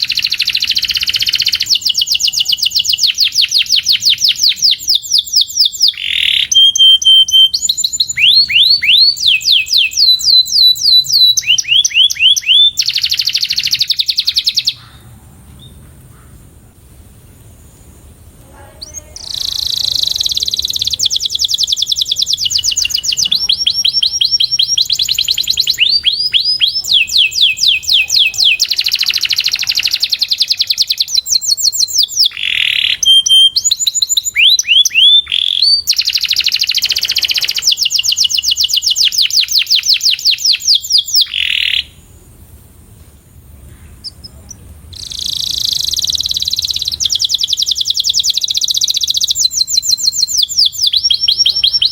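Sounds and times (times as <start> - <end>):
canary singing trills: 0.0 - 16.4, 18.5 - 42.1, 43.7 - 51.9.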